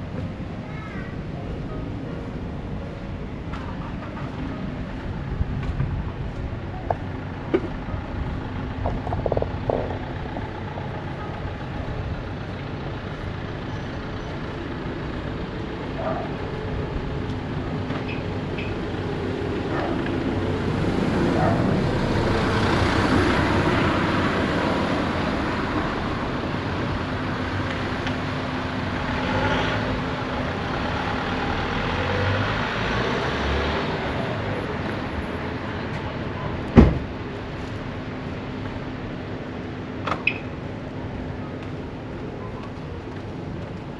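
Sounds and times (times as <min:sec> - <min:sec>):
street hum: 0:00.0 - 0:43.9
motor vehicle passing by: 0:07.3 - 0:37.9.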